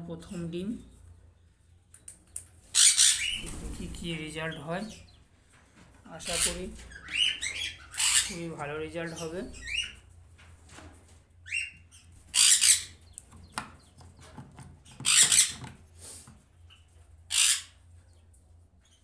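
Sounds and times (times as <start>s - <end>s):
parrots screeching: 2.7s - 3.4s, 6.2s - 8.4s, 9.6s - 10.0s, 11.4s - 13.0s, 14.9s - 15.7s, 17.3s - 17.8s.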